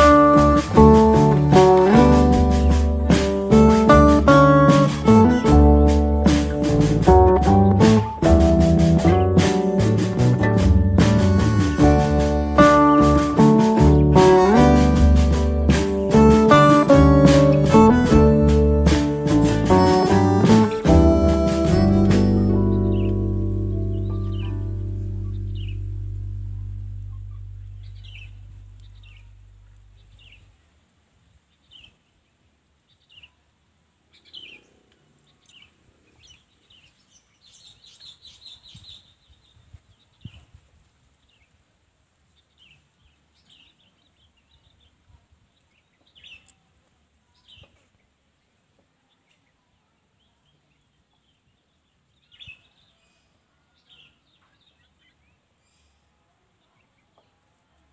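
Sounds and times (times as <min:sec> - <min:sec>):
background music: 0:00.0 - 0:28.8
birds chirping: 0:00.0 - 0:30.8, 0:31.5 - 0:40.4, 0:42.3 - 0:57.4.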